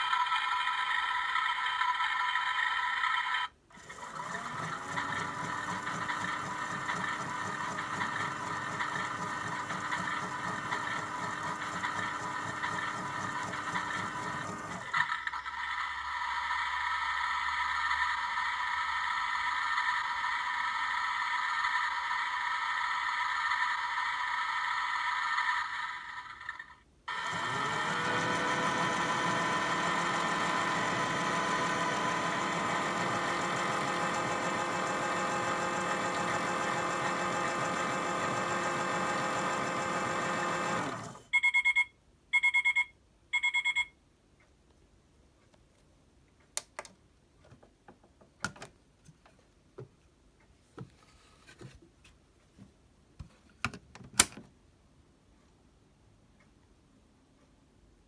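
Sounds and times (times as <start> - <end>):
small electric motor whirring: 0.0 - 41.3
short electronic beeps: 41.3 - 44.0.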